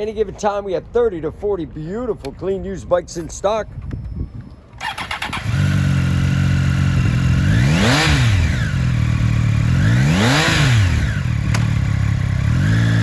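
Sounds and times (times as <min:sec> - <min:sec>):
motorcycle engine idling and revving: 0:04.8 - 0:13.0.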